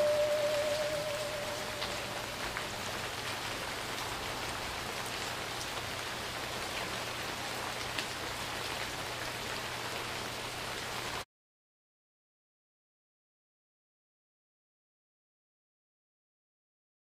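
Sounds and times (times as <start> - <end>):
steady rain falling: 0.0 - 11.3.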